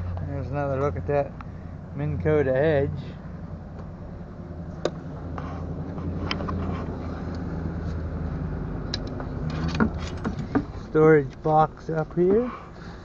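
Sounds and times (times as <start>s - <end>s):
vehicle engine idling hum: 0.0s - 13.0s
light clicks and knocks: 8.9s - 12.1s.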